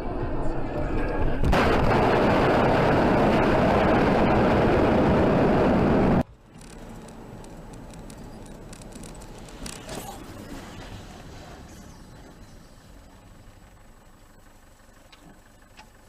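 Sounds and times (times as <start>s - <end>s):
car road and engine noise: 0.0s - 16.0s
traffic noise: 3.2s - 16.0s.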